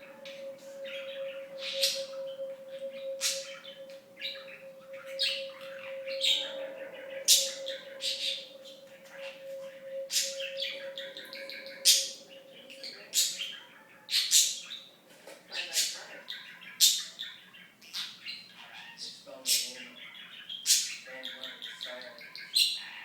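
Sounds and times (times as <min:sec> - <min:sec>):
faint steady tone: 0:00.0 - 0:13.8
sharp loud bird calls: 0:00.0 - 0:14.9.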